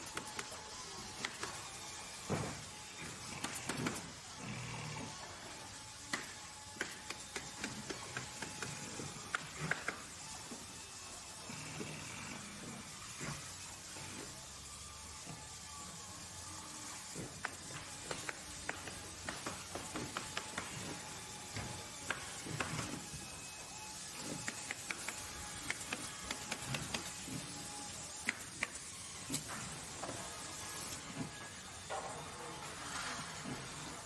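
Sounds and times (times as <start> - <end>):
steady hiss: 12.8 - 34.0.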